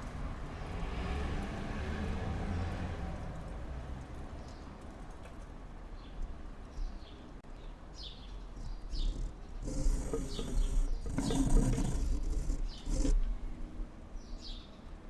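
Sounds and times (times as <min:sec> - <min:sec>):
small bird calling: 0:08.0 - 0:13.3.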